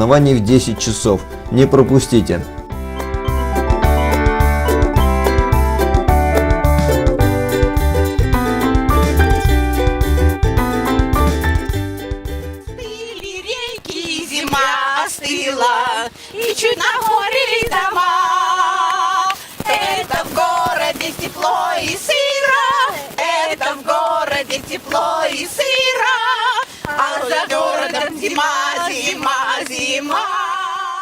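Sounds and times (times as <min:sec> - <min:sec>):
women singing together: 0:12.8 - 0:31.0.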